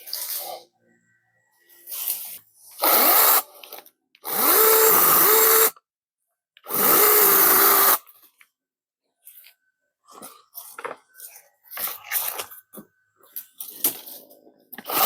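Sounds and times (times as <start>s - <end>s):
chainsaw revving: 4.4s - 5.7s.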